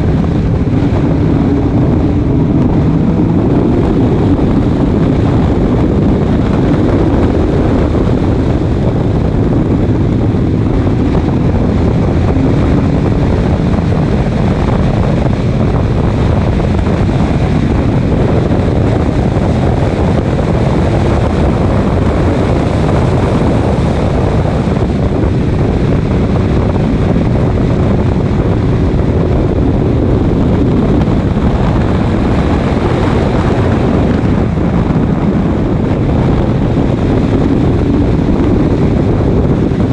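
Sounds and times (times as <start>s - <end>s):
race car engine: 0.0s - 39.9s
road noise: 0.0s - 39.9s
wind buffeting microphone: 0.0s - 39.9s.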